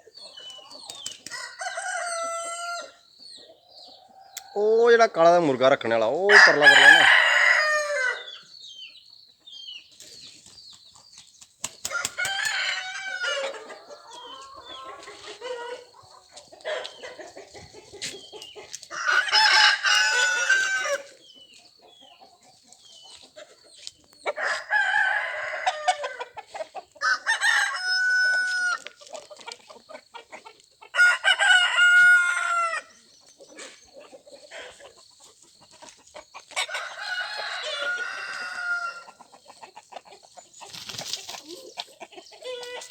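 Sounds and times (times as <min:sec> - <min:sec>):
chickens clucking: 0:00.0 - 0:42.9
roosters crowing: 0:00.3 - 0:03.1, 0:03.9 - 0:08.5, 0:11.8 - 0:21.2, 0:24.3 - 0:29.4, 0:30.9 - 0:39.8, 0:40.6 - 0:42.9.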